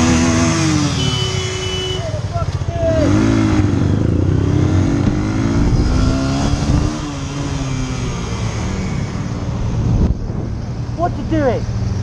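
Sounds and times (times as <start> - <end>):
motorcycle engine running: 0.0 - 12.0
wind rumble on microphone: 3.9 - 8.2, 9.0 - 11.3.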